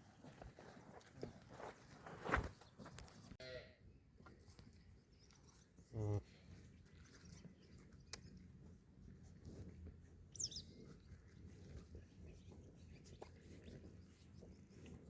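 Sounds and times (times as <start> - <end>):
high falling bird chirp: 10.3 - 10.7.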